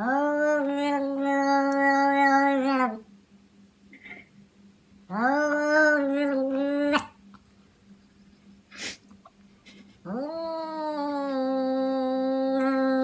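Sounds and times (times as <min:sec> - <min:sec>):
cat yowling: 0:00.0 - 0:03.0, 0:05.1 - 0:07.2, 0:10.1 - 0:13.0
puff of breath: 0:08.7 - 0:09.1.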